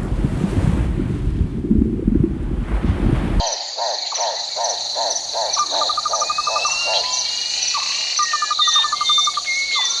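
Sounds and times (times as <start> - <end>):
fast trilling call: 3.4 - 10.0
frogs calling: 3.4 - 10.0
whistled bird notes: 3.4 - 10.0.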